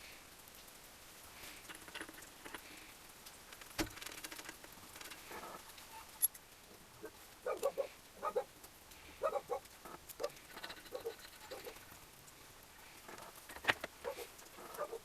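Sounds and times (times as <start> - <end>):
metal tools clinking: 10.4 - 11.8.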